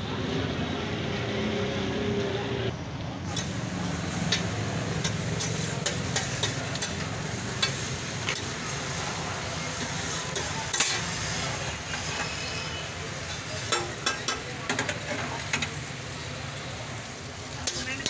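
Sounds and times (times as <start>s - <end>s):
patties sizzling in oil: 3.3s - 18.0s.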